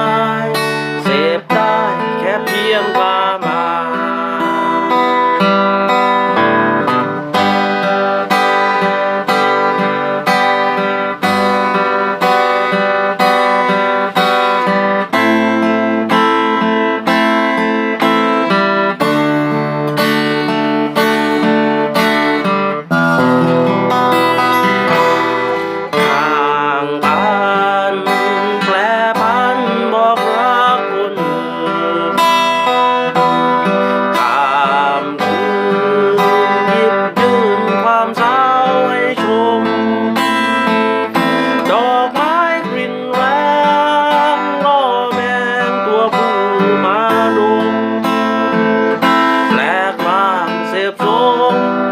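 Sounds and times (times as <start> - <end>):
acoustic guitar strumming: 0.0 - 51.9
wavering melody line: 21.3 - 27.3.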